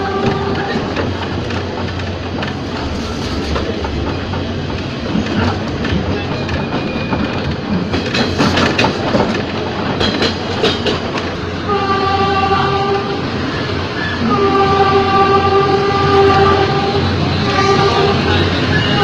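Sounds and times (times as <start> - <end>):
train rumble: 0.0 - 19.0
wheels clattering over rail joints: 0.1 - 11.5.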